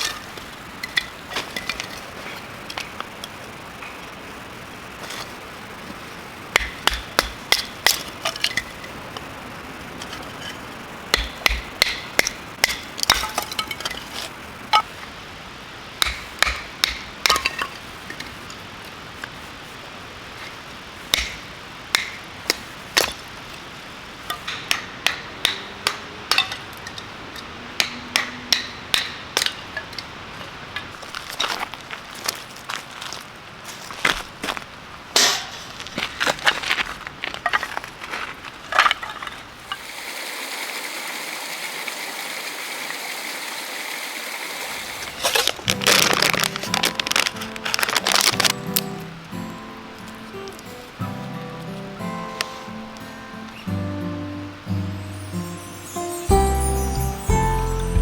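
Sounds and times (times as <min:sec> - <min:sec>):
sharp knocks like hammer blows: 0:06.6 - 0:07.8, 0:11.1 - 0:13.4, 0:16.0 - 0:17.5, 0:21.1 - 0:22.2, 0:27.8 - 0:29.6.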